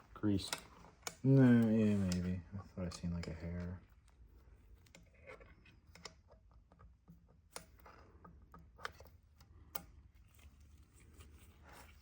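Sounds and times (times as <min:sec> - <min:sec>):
small parts clicking and tapping: 0:03.1 - 0:10.0.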